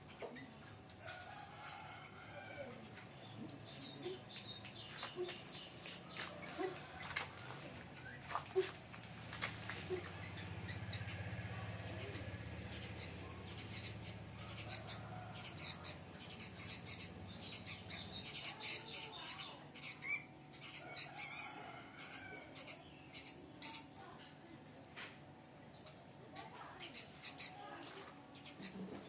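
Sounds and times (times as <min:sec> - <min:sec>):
bird chicks chirping: 0:00.2 - 0:08.7, 0:09.4 - 0:23.9.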